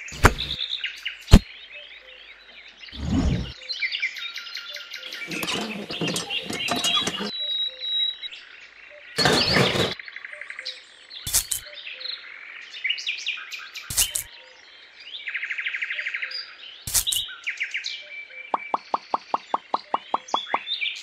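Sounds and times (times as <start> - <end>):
small birds chirping: 16.2 - 21.0.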